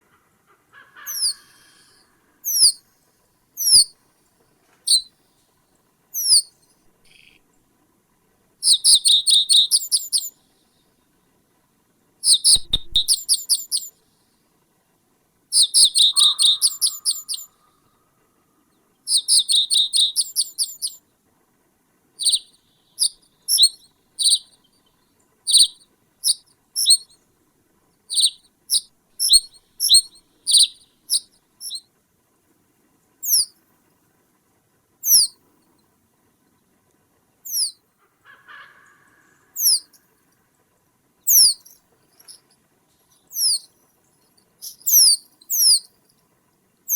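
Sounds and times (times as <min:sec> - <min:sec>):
songbird calling and chattering: 0:01.0 - 0:02.8, 0:03.6 - 0:03.9, 0:04.9 - 0:05.1, 0:06.2 - 0:07.4, 0:08.6 - 0:10.3, 0:12.2 - 0:13.9, 0:15.5 - 0:17.5, 0:19.1 - 0:21.0, 0:22.2 - 0:27.2, 0:28.1 - 0:31.8, 0:33.2 - 0:33.5, 0:35.0 - 0:35.3, 0:37.5 - 0:37.8, 0:39.5 - 0:40.0, 0:41.3 - 0:42.4, 0:43.1 - 0:45.9.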